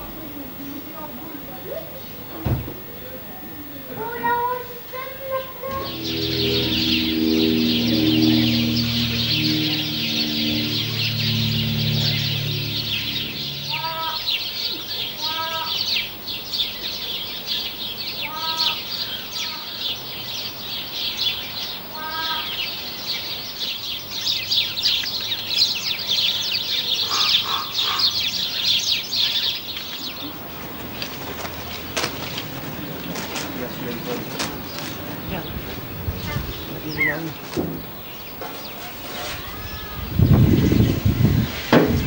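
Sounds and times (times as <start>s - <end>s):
birds twittering: 0.0s - 42.0s
bird clucking call: 26.8s - 28.8s.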